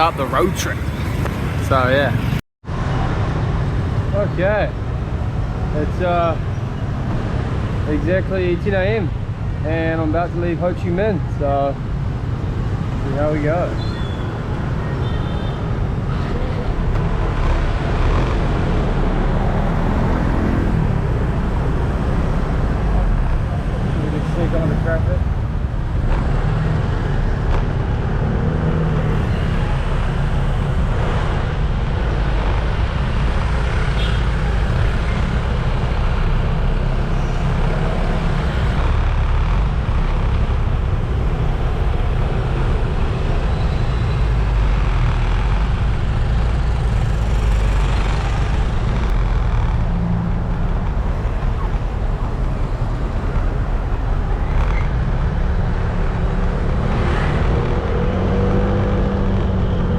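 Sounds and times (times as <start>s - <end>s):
car engines: 0.0s - 59.9s
low rumble of traffic: 0.0s - 59.9s
motorbike engines: 0.0s - 59.9s.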